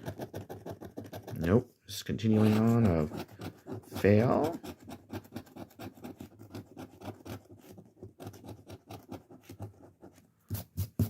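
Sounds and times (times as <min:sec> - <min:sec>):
coin scratching lottery ticket: 0:00.0 - 0:01.5, 0:02.3 - 0:09.6.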